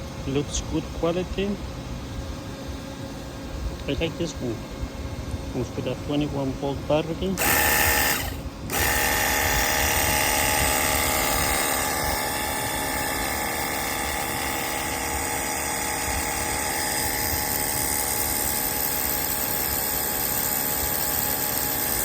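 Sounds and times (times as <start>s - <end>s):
pressure washer motor whining: 7.3s - 22.0s.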